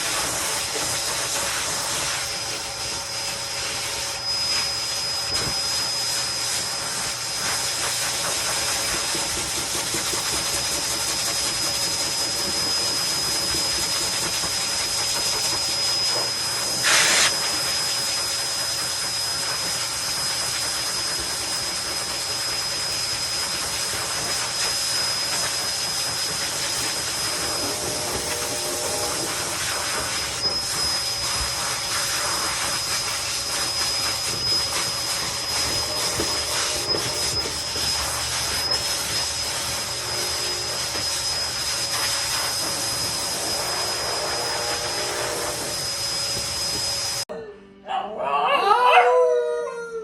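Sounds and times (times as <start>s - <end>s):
rushing hiss with high whine: 0.0s - 47.2s.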